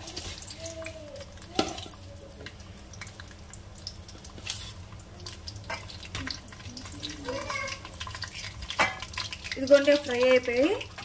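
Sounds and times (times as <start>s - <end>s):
lentils sizzling in hot oil: 0.0s - 11.0s.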